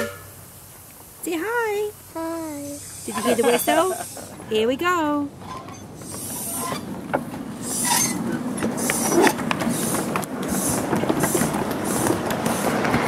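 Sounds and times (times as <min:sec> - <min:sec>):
wheels clicking on rails: 0:00.0 - 0:13.0
hissing puff: 0:06.0 - 0:06.8, 0:07.6 - 0:13.0.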